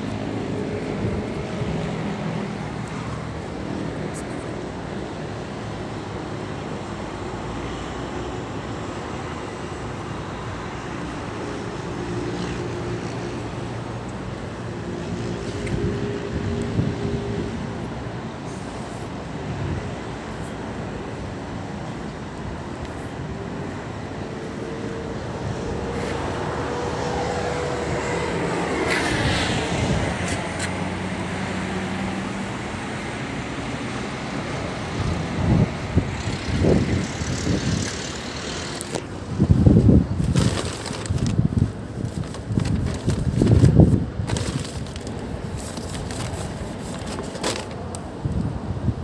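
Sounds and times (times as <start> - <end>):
road traffic rumble: 0.0 - 49.0
vehicle passing: 25.0 - 32.6.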